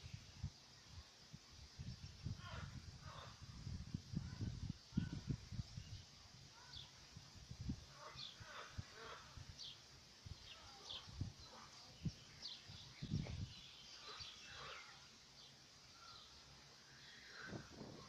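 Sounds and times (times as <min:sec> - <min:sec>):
small birds chirping: 0:04.1 - 0:18.0.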